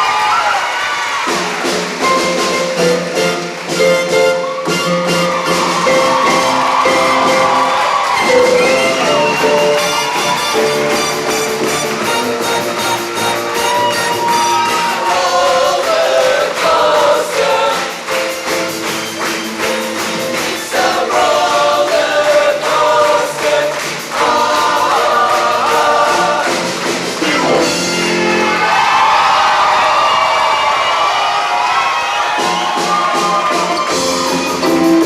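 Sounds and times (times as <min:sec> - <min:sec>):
percussive accompaniment: 0:01.2 - 0:28.9, 0:32.3 - 0:35.0
choir singing upbeat song: 0:05.2 - 0:29.3.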